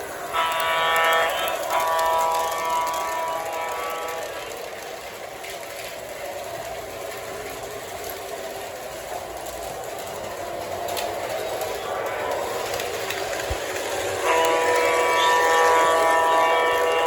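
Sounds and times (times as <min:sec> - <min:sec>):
model train running: 0:00.0 - 0:17.0
model train electronic horn: 0:00.2 - 0:04.8, 0:11.7 - 0:17.0.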